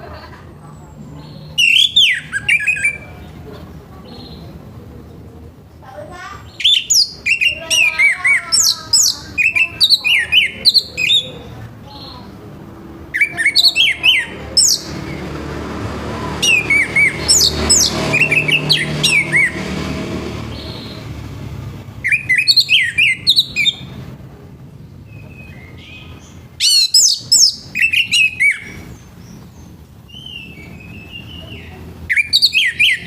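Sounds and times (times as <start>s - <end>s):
low background rumble: 0.0s - 32.1s
thrush singing: 6.5s - 24.2s.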